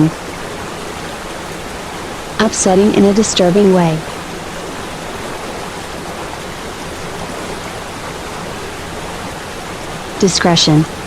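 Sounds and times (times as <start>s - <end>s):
waterfall rushing water: 0.0s - 11.0s.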